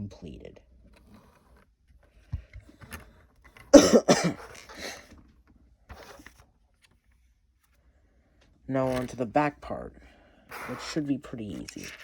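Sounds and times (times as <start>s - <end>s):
man coughing: 3.8s - 5.0s.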